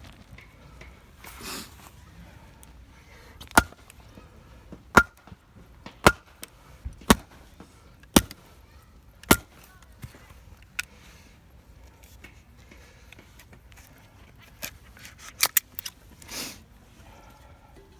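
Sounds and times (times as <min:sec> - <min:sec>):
sharp blows with metallic ring: 0:05.0 - 0:05.2.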